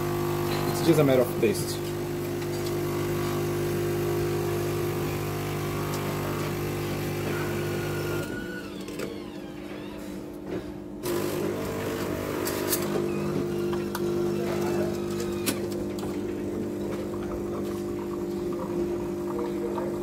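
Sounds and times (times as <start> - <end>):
coffee machine motor hum: 0.0 - 10.0, 11.0 - 20.0.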